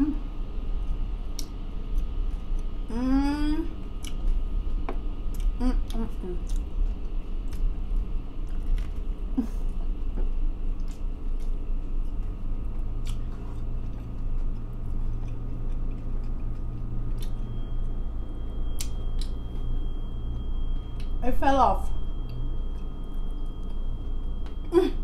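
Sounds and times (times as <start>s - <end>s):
steady low hum: 0.0s - 25.0s
person chewing: 4.0s - 4.4s, 5.3s - 17.6s.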